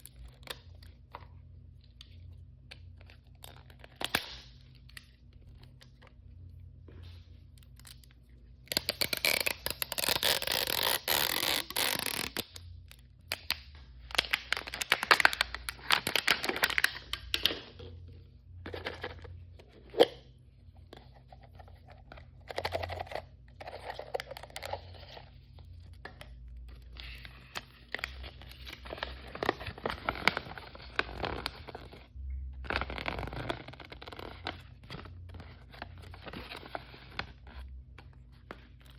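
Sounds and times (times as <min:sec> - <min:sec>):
plastic packaging tearing and crinkling: 0:08.6 - 0:12.6, 0:13.3 - 0:17.6, 0:27.0 - 0:38.9.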